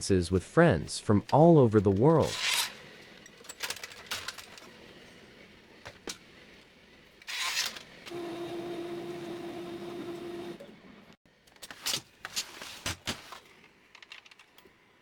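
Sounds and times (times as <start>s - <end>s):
small electric motor humming: 8.1s - 10.6s.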